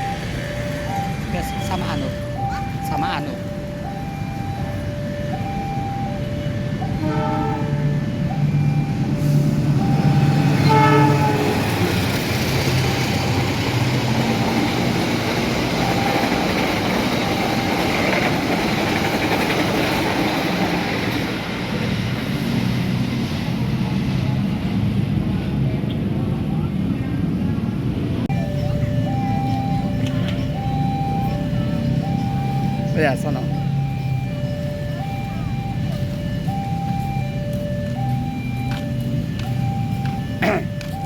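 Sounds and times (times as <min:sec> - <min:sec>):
train wheels rumbling on rails: 0:06.6 - 0:32.8
train horn: 0:06.9 - 0:07.9, 0:10.5 - 0:12.0.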